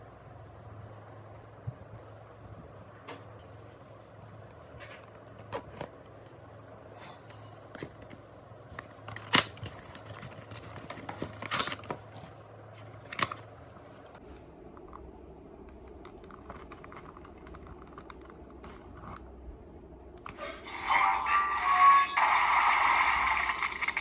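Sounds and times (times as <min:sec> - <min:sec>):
low steady hum: 0:00.0 - 0:24.0
packaging rustling: 0:07.7 - 0:14.2.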